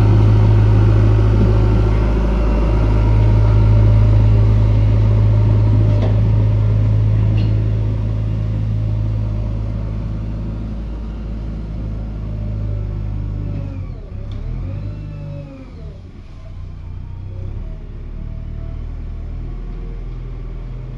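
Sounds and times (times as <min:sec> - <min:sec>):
diesel engine humming: 0:00.0 - 0:20.9.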